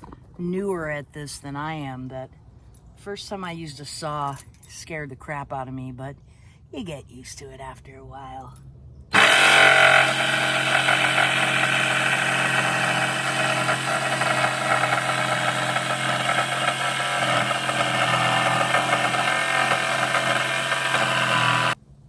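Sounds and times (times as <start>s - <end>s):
power saw cutting wood: 9.1s - 21.8s.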